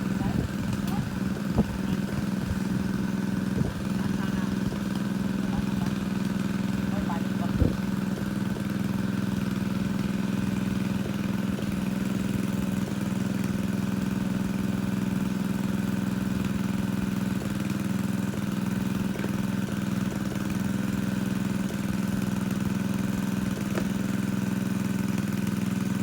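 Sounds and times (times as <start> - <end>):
water pump engine running: 0.0 - 26.0.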